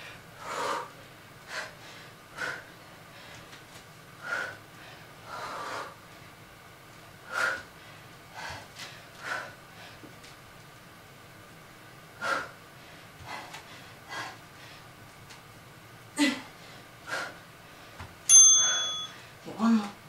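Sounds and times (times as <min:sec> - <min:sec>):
person breathing hard: 0:00.0 - 0:03.6, 0:04.2 - 0:06.0, 0:07.2 - 0:10.1, 0:12.2 - 0:14.9, 0:16.2 - 0:18.0.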